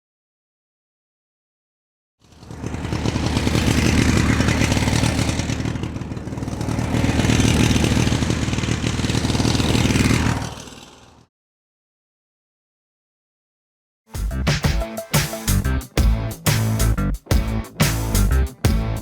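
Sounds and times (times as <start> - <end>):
vehicle engine running: 2.3 - 11.2, 15.5 - 19.0.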